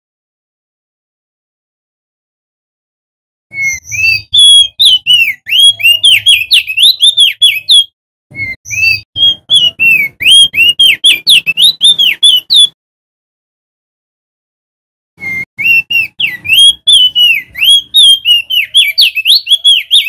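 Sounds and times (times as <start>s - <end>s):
bird whistling song: 3.5s - 12.8s, 15.2s - 20.0s.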